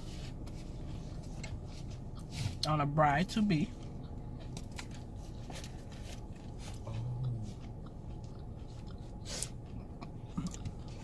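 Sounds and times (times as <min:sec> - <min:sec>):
person chewing food: 0:00.1 - 0:02.7, 0:03.7 - 0:11.0.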